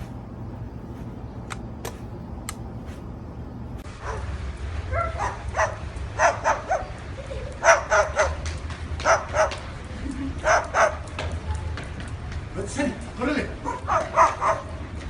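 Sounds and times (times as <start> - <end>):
dog barking: 4.0 - 4.3, 4.9 - 6.9, 7.6 - 8.4, 9.0 - 9.6, 10.4 - 11.0, 13.6 - 14.8.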